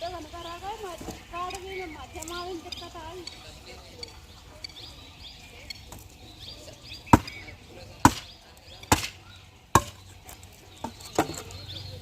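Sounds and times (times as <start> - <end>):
axe chopping firewood: 7.1 - 11.6.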